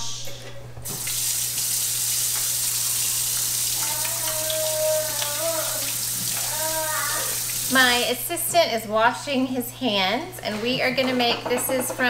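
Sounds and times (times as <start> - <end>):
tap water running into sink: 0.8 - 8.2.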